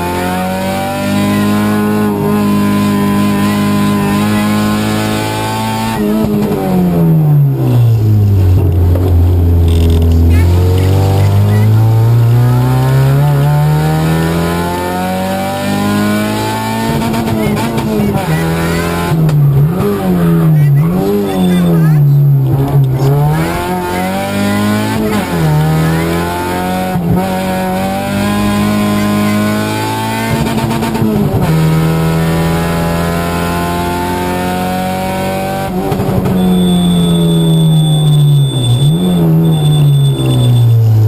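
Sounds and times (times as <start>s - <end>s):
rally car engine revving: 0.0s - 41.0s
engine crackle: 7.6s - 13.0s.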